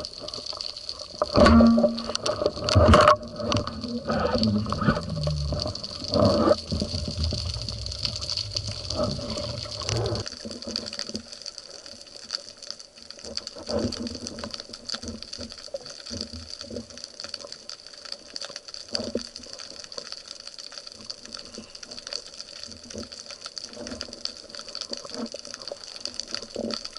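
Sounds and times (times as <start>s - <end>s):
small crackling clicks: 0.0s - 26.9s
underwater hiss: 2.0s - 10.5s
heavy low rumble: 3.0s - 10.3s.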